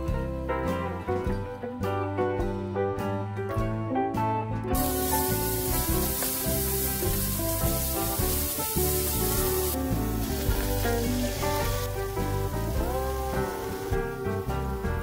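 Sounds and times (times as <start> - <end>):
background music: 0.0 - 15.0
garlic sizzling in oil: 4.8 - 15.0.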